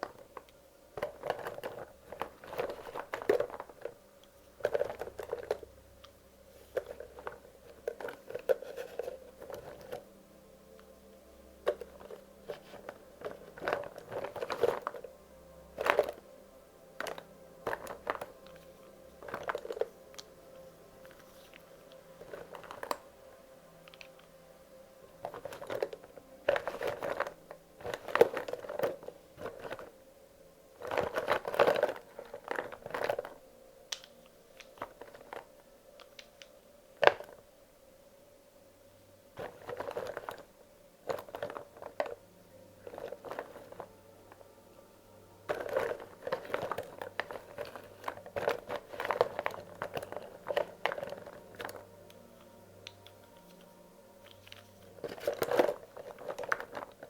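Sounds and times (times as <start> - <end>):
crayons clattering and rustling: 0.0 - 10.1, 11.6 - 23.1, 23.7 - 24.4, 25.0 - 30.0, 30.7 - 37.5, 39.3 - 42.2, 42.8 - 44.5, 45.4 - 57.0
crayons clicking together: 30.8 - 37.4.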